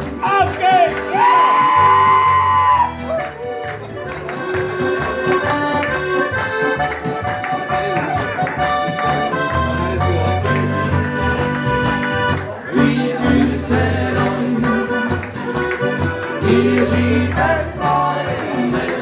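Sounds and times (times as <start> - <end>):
bass line: 0.0 - 3.2
accordion folk band: 0.0 - 19.0.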